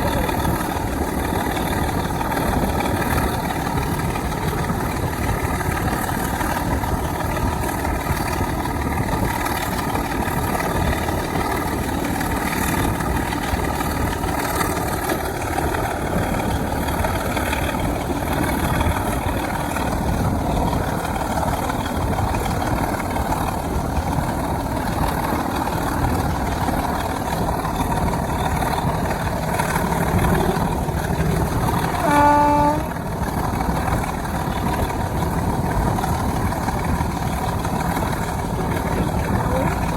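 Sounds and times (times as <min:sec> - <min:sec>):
diesel locomotive engine: 0:00.0 - 0:39.9
train horn tone: 0:31.8 - 0:33.1.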